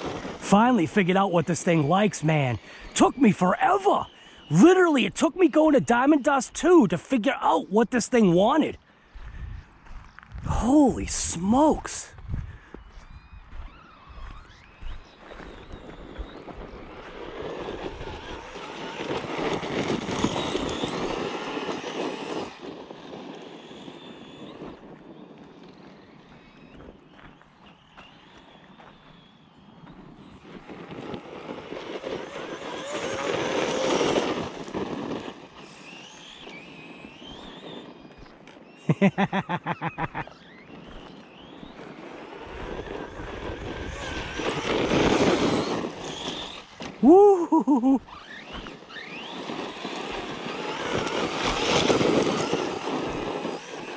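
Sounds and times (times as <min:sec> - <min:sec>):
rc truck motor whine: 0:00.0 - 0:06.3, 0:11.4 - 0:39.2, 0:39.8 - 0:53.9
tyre noise on dirt: 0:12.1 - 0:24.1, 0:26.0 - 0:38.8, 0:40.2 - 0:53.9
short pitched pulses: 0:42.5 - 0:49.3.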